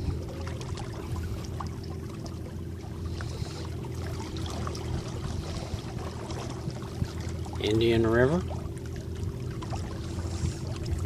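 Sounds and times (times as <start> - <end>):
water splashing along hull: 0.0 - 11.0.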